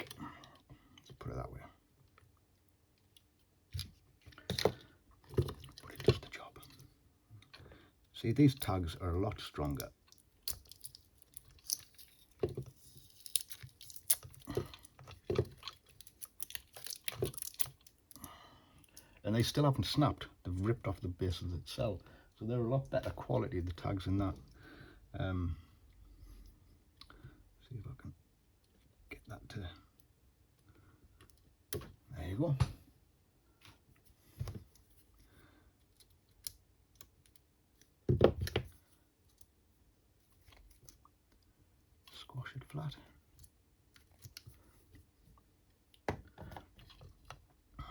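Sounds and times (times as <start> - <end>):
metal tabs crackling and clicking: 9.6 - 19.1.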